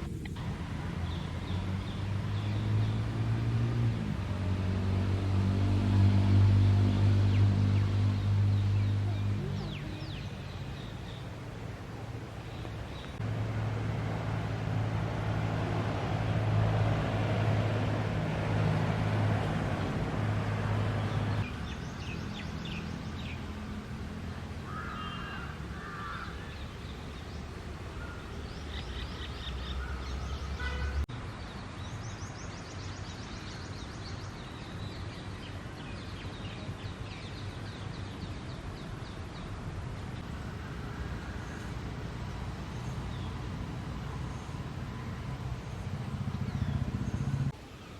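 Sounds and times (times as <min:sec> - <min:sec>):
low engine hum: 0:00.0 - 0:31.1, 0:40.2 - 0:47.9
bird calls: 0:06.9 - 0:13.2, 0:24.5 - 0:31.0, 0:40.2 - 0:47.9.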